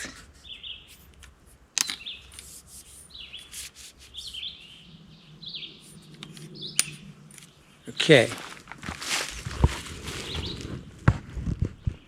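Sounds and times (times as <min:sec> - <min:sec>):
handling and rubbing noises: 0:00.0 - 0:04.8, 0:05.8 - 0:12.0
small birds chirping: 0:00.2 - 0:08.7, 0:10.0 - 0:12.0.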